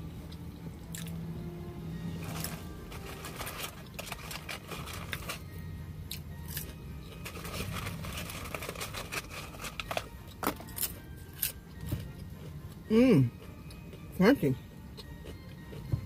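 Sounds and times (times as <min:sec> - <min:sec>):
chewing crunchy fries: 0:00.2 - 0:01.2, 0:02.2 - 0:16.0
paper carton rustling: 0:02.2 - 0:05.4, 0:07.2 - 0:10.0.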